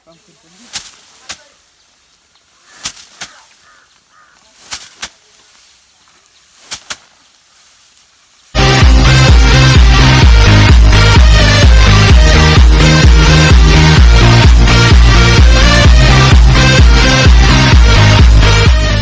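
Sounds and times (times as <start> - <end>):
rice sheaves beaten on hard surface: 0.6 - 1.6, 2.8 - 3.5, 4.6 - 5.7, 6.5 - 7.2.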